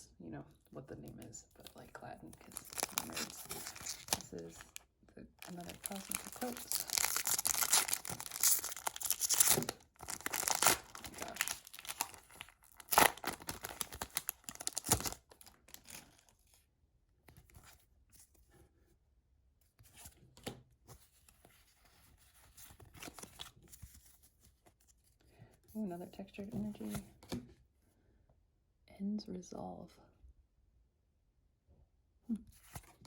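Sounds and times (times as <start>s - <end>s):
foil wrapper tearing and crinkling: 2.5s - 4.8s, 5.4s - 16.2s.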